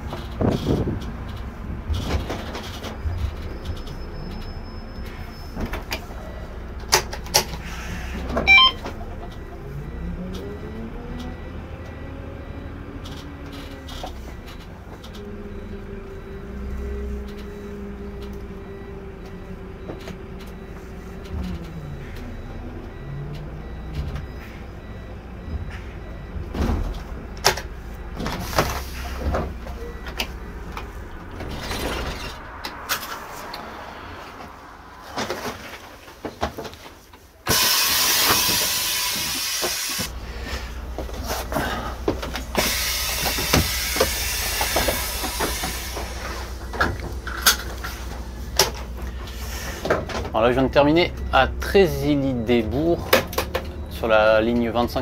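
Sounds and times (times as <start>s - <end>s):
bus engine and gearbox whine: 0.0s - 55.0s
compressed air hiss: 37.5s - 40.1s, 42.6s - 46.5s.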